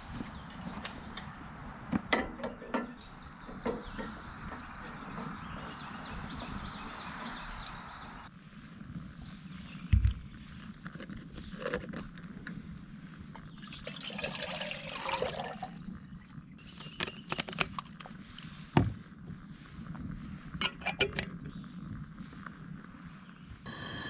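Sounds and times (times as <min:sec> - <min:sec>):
liquid pouring: 0:13.4 - 0:15.8.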